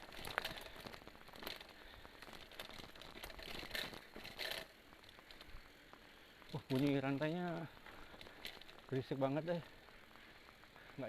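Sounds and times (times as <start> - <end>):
bike chain rattling and slapping: 0.0 - 5.7, 6.4 - 9.8.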